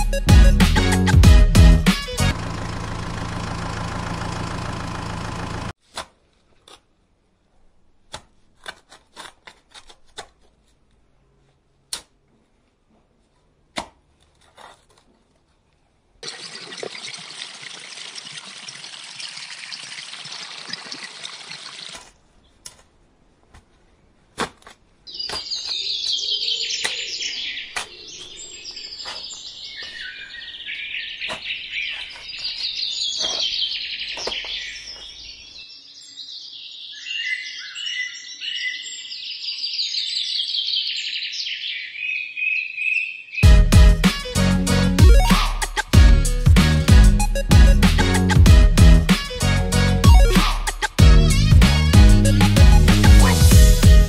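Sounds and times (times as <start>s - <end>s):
music: 0.0s - 2.3s, 43.4s - 54.0s
water pouring into cement powder: 16.2s - 22.1s
birds chirping: 25.1s - 43.5s.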